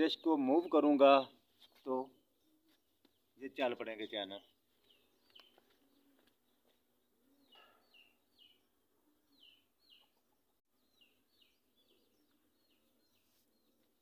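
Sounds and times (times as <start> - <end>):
bird chirps: 0.0 - 14.0.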